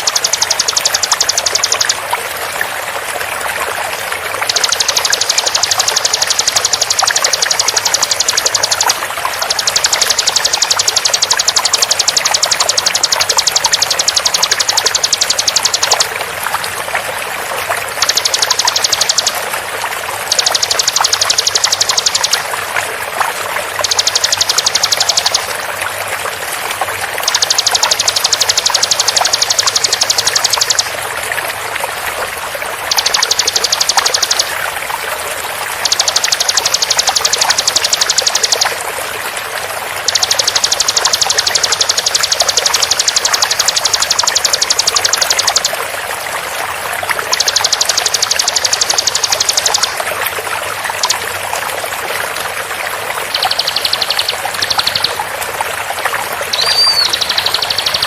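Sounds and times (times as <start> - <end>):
bird singing rapid trills: 0.0 - 2.0, 4.4 - 16.1, 17.8 - 19.5, 20.2 - 22.5, 23.7 - 25.6, 27.2 - 31.0, 32.9 - 34.6, 35.8 - 38.8, 40.0 - 45.8, 47.2 - 50.0, 53.2 - 55.2, 56.5 - 58.0
flowing water rush: 0.0 - 58.0.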